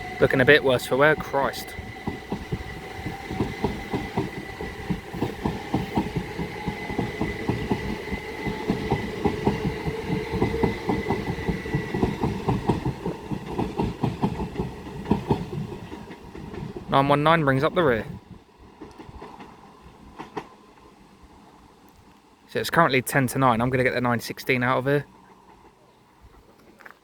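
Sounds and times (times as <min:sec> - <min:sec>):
train wheels clattering over rail joints: 0:01.8 - 0:16.9.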